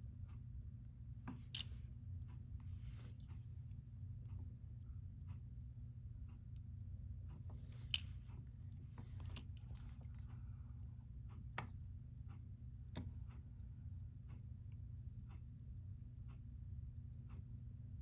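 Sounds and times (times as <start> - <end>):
clicks and taps of watch tools: 0.0 - 4.6, 6.2 - 18.0
fast watch ticking: 0.0 - 18.0.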